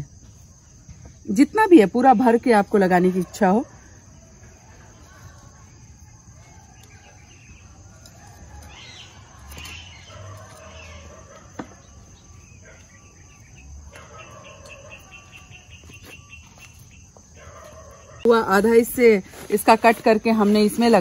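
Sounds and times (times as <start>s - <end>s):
faint birds chirping: 0.0s - 21.0s
bird trill: 4.8s - 18.3s.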